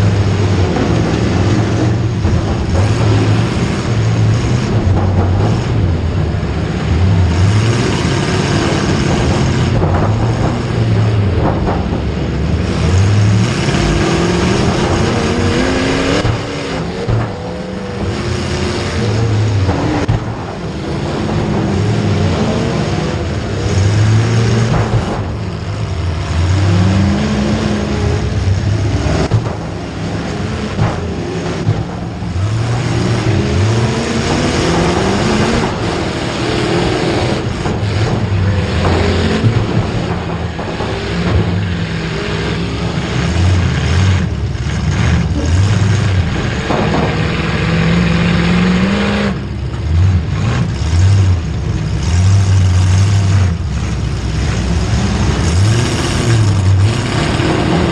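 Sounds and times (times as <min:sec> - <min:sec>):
background din: 0:00.0 - 0:57.9
engines revving: 0:00.0 - 0:57.9.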